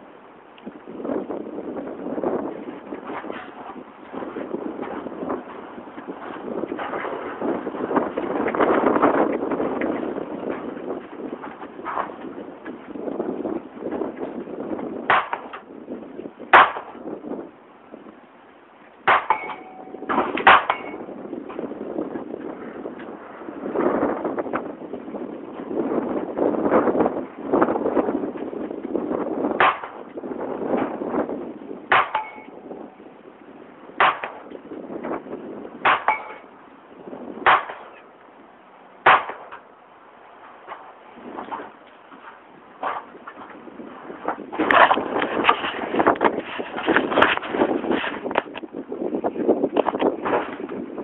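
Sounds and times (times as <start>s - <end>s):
pistol shots: 16.5s - 17.0s, 31.9s - 32.5s, 34.0s - 34.5s, 35.8s - 36.4s, 37.4s - 38.0s, 39.0s - 39.7s
steel target plate ringing: 19.1s - 21.1s, 31.9s - 33.1s, 35.8s - 36.6s.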